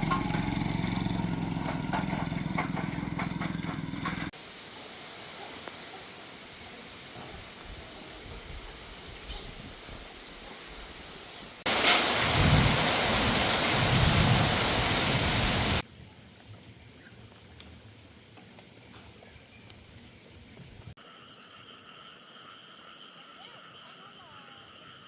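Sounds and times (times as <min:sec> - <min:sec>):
heavy rain pouring: 0:11.7 - 0:15.8.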